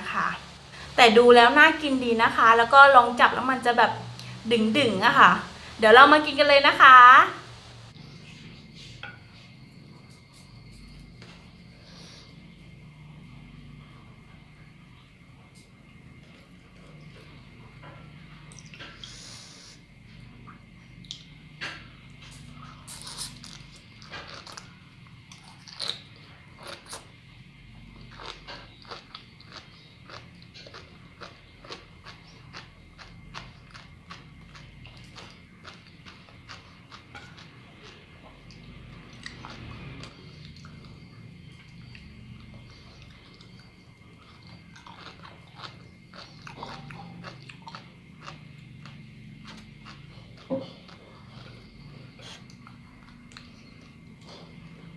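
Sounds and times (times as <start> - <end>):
crunchy chewing: 21.0 - 54.9.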